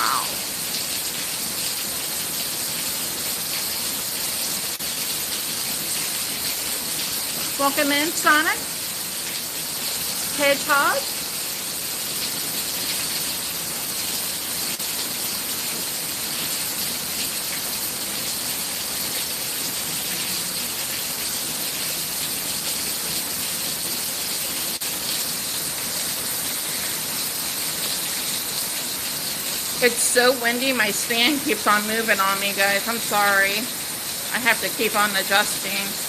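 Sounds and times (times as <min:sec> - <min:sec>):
torrential rain pouring: 0:00.0 - 0:36.0.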